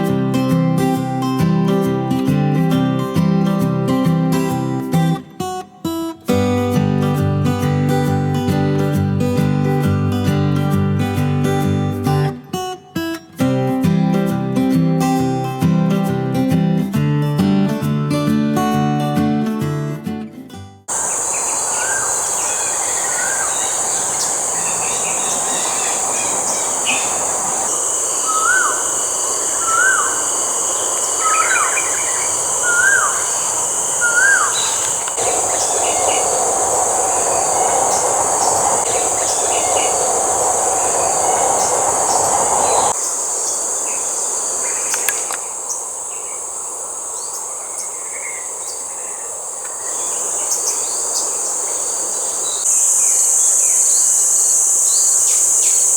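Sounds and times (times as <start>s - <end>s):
bird call notes: 20.9s - 55.9s
high-pitched insect drone: 20.9s - 55.9s.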